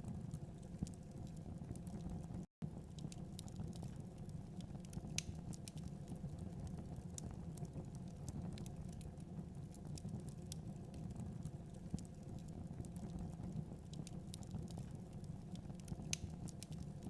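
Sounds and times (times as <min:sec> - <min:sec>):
low rumble of flames: 0:00.0 - 0:17.0
wood fire crackling: 0:00.0 - 0:17.0
sharp pops of fire: 0:04.8 - 0:05.9, 0:15.9 - 0:16.9.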